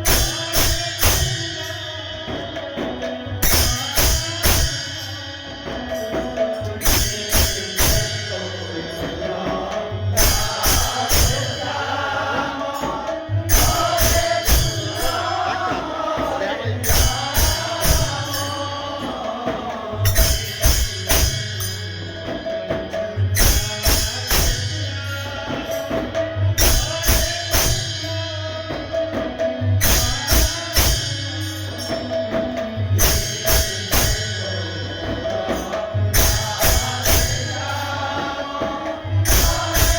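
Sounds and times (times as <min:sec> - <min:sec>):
drums: 0:00.0 - 0:39.9
jingling metal percussion: 0:00.0 - 0:39.9
voices chanting: 0:05.6 - 0:27.8, 0:31.7 - 0:39.9.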